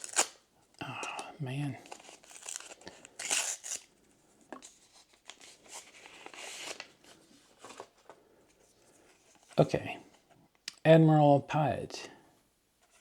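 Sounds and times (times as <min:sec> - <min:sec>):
foil pack crinkling torn open: 0:00.0 - 0:00.4, 0:01.8 - 0:03.9
trading cards rustling: 0:01.0 - 0:03.9.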